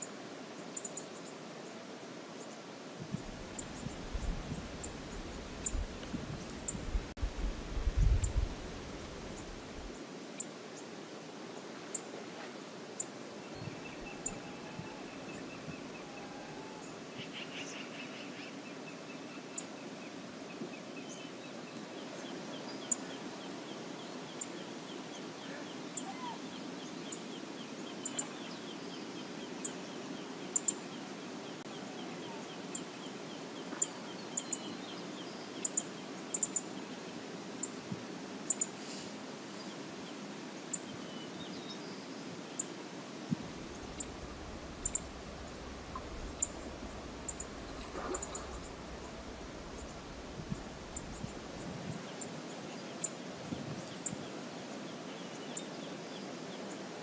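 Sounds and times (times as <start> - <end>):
river water rushing: 21.4 - 57.0.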